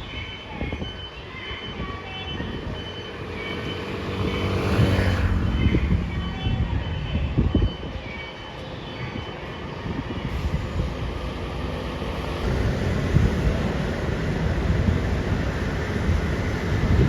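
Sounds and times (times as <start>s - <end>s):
wind buffeting microphone: 0.0s - 8.2s, 9.0s - 17.0s
vehicle engine rumble: 2.4s - 8.0s, 9.4s - 17.0s.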